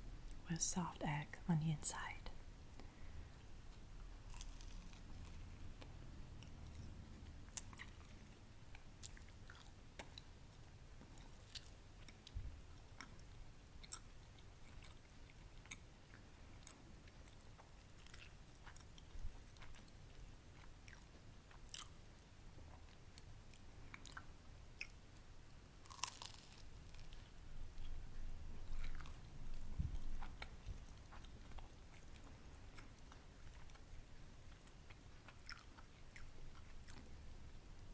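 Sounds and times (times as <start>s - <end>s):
crunchy chewing: 4.3s - 6.9s, 7.5s - 10.3s, 13.0s - 22.0s, 25.8s - 28.0s, 28.6s - 33.9s, 34.5s - 37.2s.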